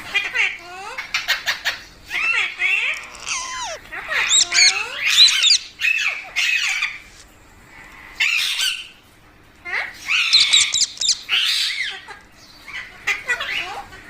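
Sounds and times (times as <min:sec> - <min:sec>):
parrot squawking: 0:01.3 - 0:06.9, 0:10.0 - 0:12.1.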